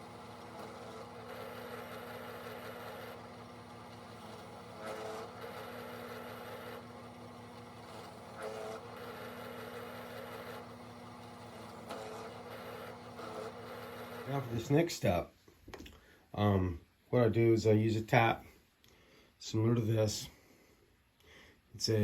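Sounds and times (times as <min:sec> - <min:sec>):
drill bit cutting pipe: 0:00.0 - 0:14.6
drill press motor running: 0:00.0 - 0:14.8.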